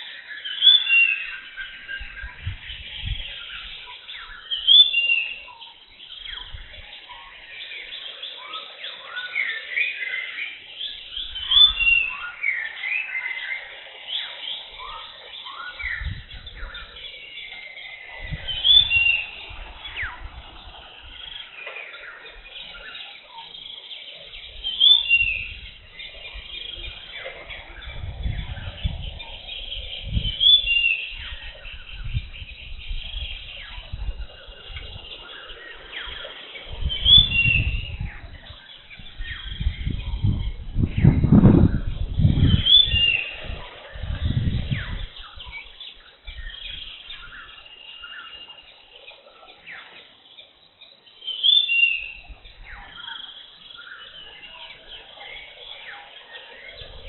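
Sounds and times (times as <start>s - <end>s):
forest birds chirping and calling: 0.0s - 57.0s.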